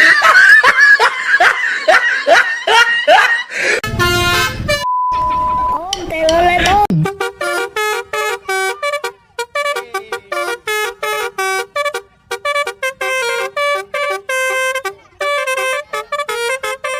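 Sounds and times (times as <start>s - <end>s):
bus horn playing a tune: 3.8s - 5.6s, 6.9s - 16.9s.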